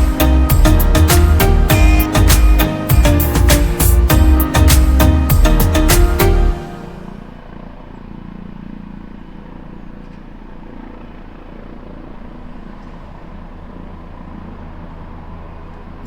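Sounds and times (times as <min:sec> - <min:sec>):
helicopter rotor drone: 0:06.8 - 0:16.0.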